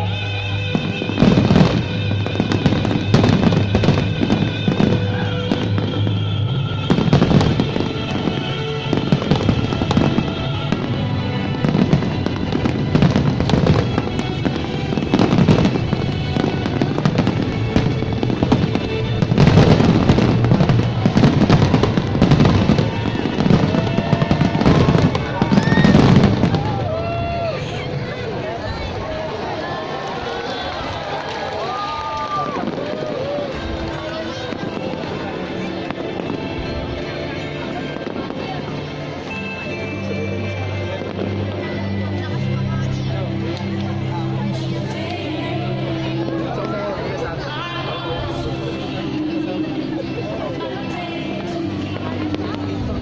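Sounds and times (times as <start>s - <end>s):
music: 0.0s - 53.0s
fireworks bursting: 0.1s - 29.9s, 30.6s - 42.3s.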